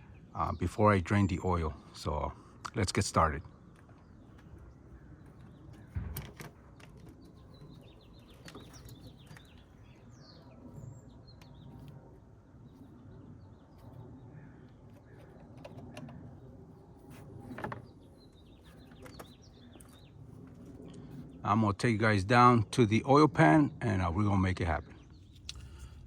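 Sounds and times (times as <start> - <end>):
small birds chirping: 0.0 - 21.8, 22.5 - 26.0
loud thump: 5.9 - 6.4.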